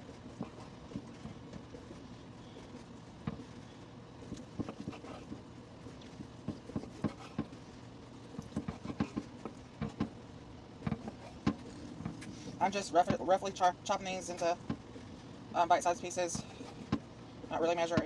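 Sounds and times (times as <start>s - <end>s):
washer and dryer humming: 5.9s - 18.0s
knife chopping on cutting board: 6.4s - 7.6s, 8.5s - 10.1s, 10.8s - 12.2s.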